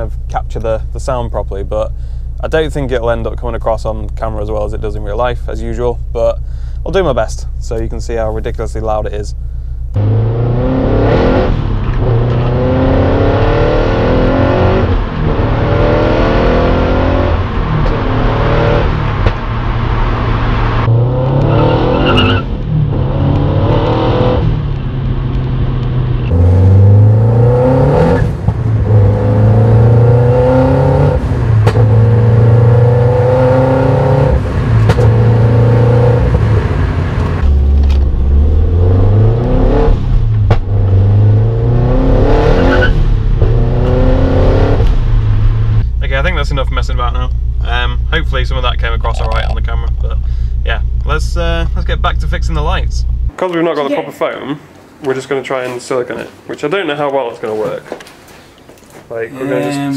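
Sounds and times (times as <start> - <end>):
car engine revving from inside: 9.9 - 45.9
loud road noise: 10.0 - 47.9
person speaking: 46.0 - 57.9, 59.0 - 59.9.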